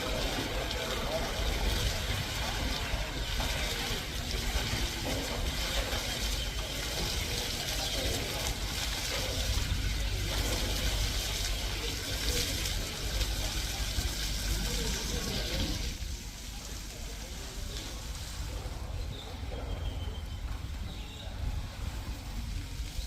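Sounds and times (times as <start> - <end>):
running water: 0.0 - 23.0.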